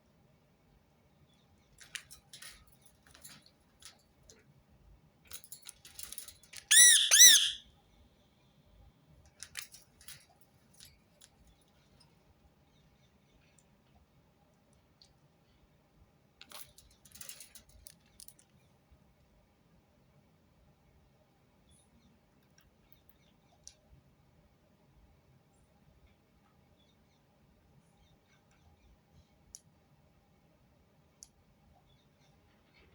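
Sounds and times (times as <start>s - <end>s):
parakeet screech: 6.7s - 7.6s.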